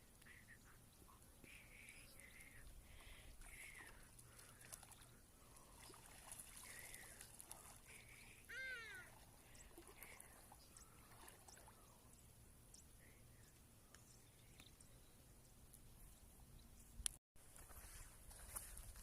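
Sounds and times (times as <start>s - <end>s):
faint animal calls: 8.1s - 9.6s.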